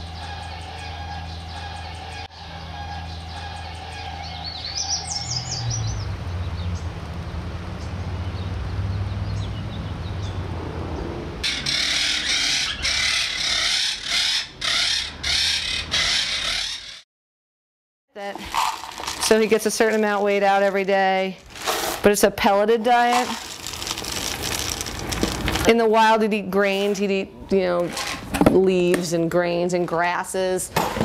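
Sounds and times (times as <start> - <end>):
high rising bird chirps: 0.0 - 6.9, 11.0 - 17.0
low hum: 0.0 - 8.1
harsh bird squawks: 11.4 - 17.0.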